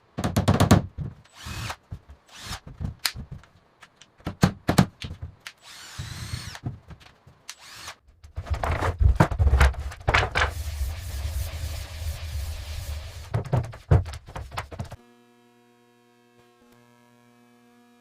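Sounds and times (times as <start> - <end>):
power drill whine: 1.3 - 2.6, 5.6 - 6.6, 7.6 - 8.0
knocks and clatter: 1.9 - 3.6, 8.2 - 10.5, 13.2 - 15.0
low power tool drone: 15.0 - 18.0.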